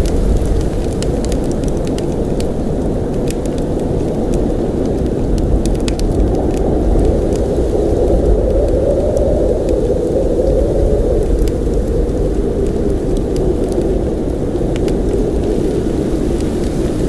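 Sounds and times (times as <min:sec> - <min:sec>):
blizzard wind rushing: 0:00.0 - 0:17.0.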